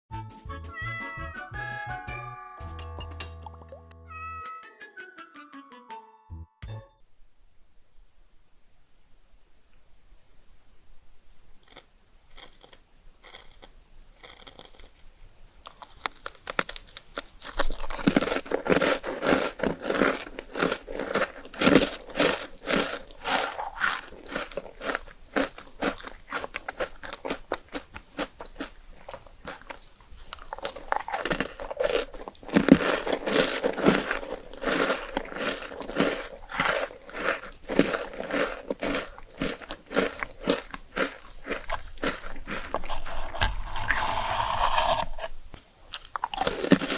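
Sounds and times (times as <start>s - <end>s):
crunchy chewing of rice cakes: 11.6s - 45.3s, 45.9s - 46.9s.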